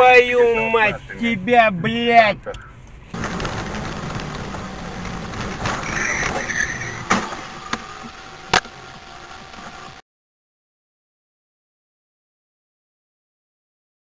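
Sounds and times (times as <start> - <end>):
car engine: 0.0 - 10.0
road noise: 0.0 - 10.0.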